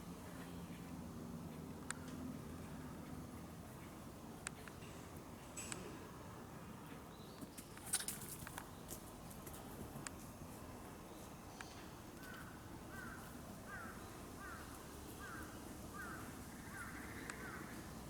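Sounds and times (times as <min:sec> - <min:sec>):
bird calling: 0:11.7 - 0:17.8.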